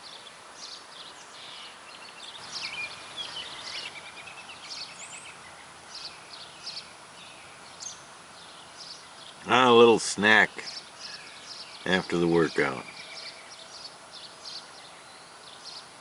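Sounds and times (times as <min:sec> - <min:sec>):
birds chirping and trilling: 0:00.0 - 0:16.0
faint steady hiss: 0:00.0 - 0:16.0.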